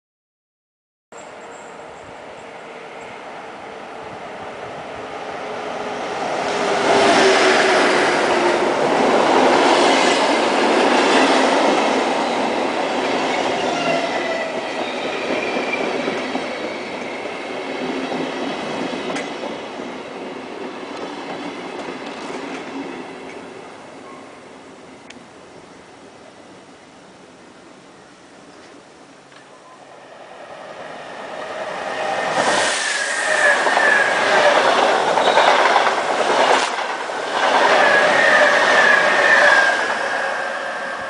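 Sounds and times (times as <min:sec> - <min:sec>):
train wheels rolling on rails: 0:04.8 - 0:23.9, 0:28.6 - 0:41.0.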